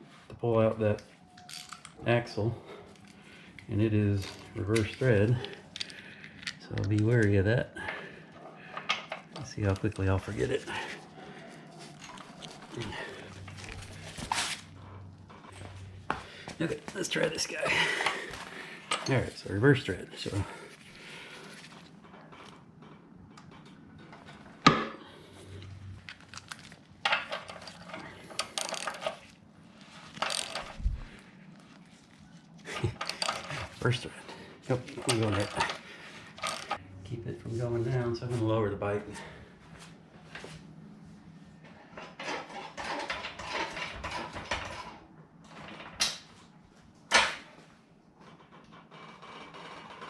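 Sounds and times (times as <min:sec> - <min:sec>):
hand tools clicking and rattling: 0:26.0 - 0:29.3, 0:30.1 - 0:31.0, 0:32.7 - 0:33.8, 0:34.8 - 0:36.8.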